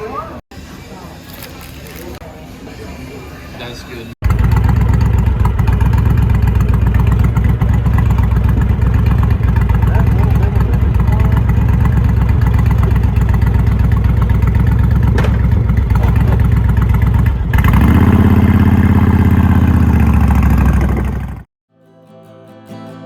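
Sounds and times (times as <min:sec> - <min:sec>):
motorcycle engine running: 0:04.2 - 0:21.5
acoustic guitar music: 0:21.7 - 0:23.0.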